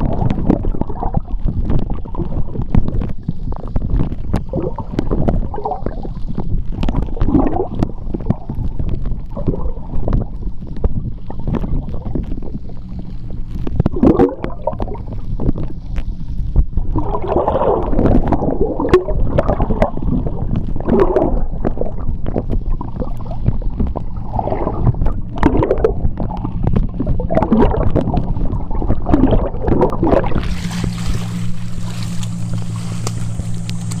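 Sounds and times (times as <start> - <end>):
gurgling bubbles: 0.0 - 34.0
underwater low rumble: 0.0 - 34.0
steady low hum: 7.8 - 20.8, 29.8 - 34.0.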